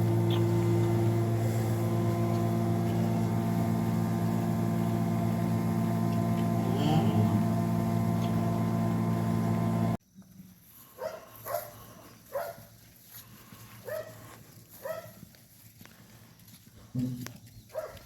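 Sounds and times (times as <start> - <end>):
steady machine hum: 0.0 - 10.0.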